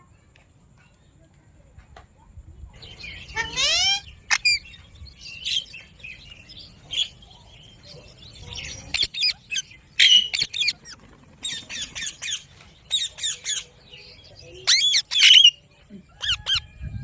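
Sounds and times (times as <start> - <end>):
parakeet squawking and chirping: 3.3 - 4.8, 8.4 - 13.7, 14.6 - 15.6, 16.2 - 16.6.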